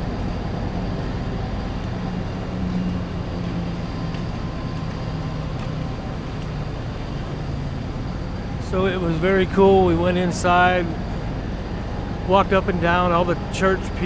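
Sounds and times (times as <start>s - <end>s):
road noise: 0.0s - 14.0s
vehicle engine hum: 0.0s - 14.0s.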